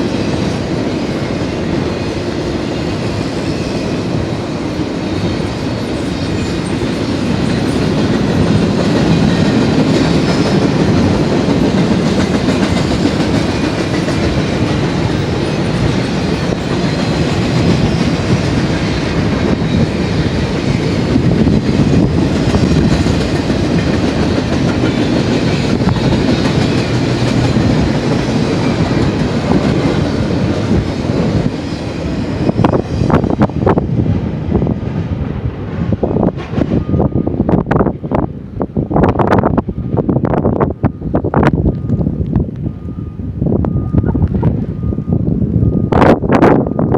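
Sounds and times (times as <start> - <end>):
clickety-clack over rail joints: 0.0 - 42.8
train wheels rumbling on rails: 0.0 - 46.9.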